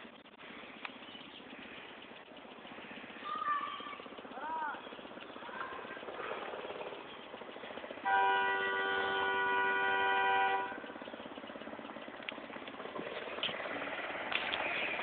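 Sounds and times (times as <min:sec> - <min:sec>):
small engine running: 0:00.0 - 0:15.0
vehicle horn: 0:08.0 - 0:11.0.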